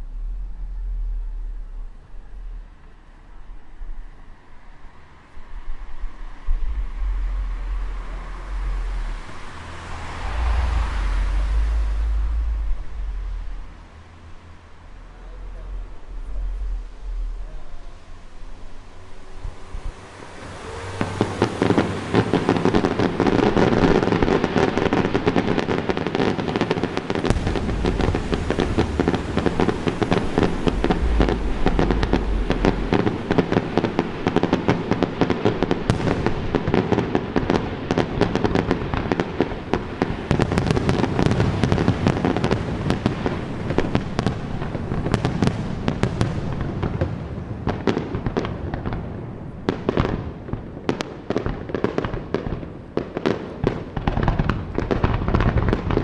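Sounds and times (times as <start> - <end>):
deep fireworks booms: 6.4 - 56.0
fireworks bangs and crackles: 6.4 - 56.0.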